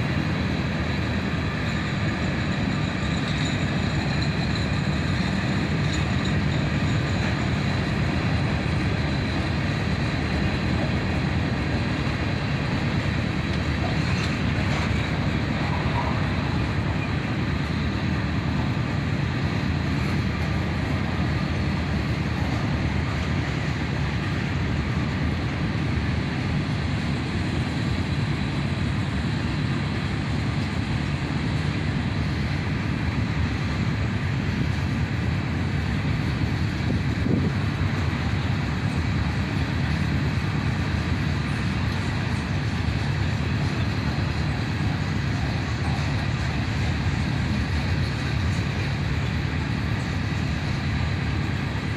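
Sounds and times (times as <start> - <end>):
steel wheels rolling on rail: 0.0 - 51.9.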